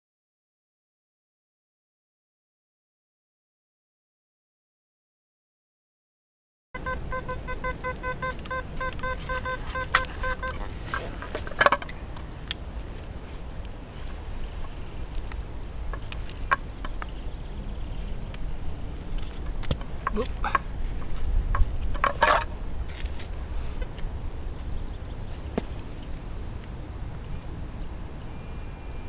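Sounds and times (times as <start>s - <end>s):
metal detector beeping: 6.8s - 11.8s
wind and rain on microphone: 7.0s - 29.0s.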